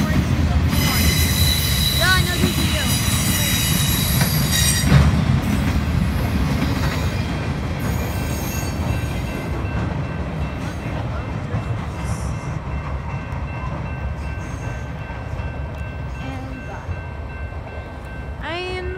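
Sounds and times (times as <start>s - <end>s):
freight train rumbling past: 0.0s - 18.9s
high metallic squeal: 0.8s - 5.0s.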